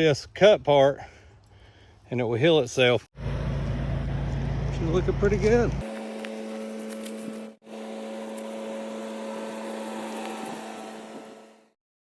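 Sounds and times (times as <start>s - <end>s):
chainsaw running at high revs: 5.8s - 11.7s.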